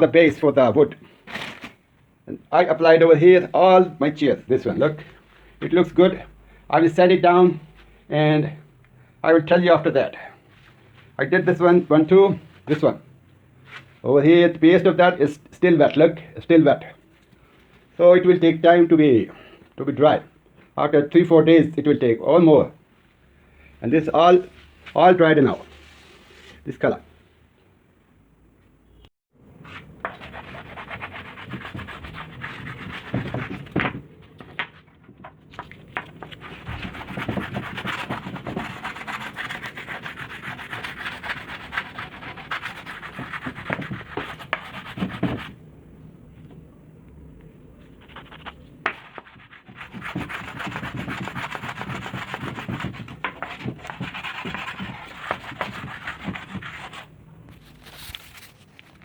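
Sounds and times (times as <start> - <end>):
sandpaper rubbing on wood: 30.2 - 33.7, 36.3 - 45.5, 49.0 - 57.1.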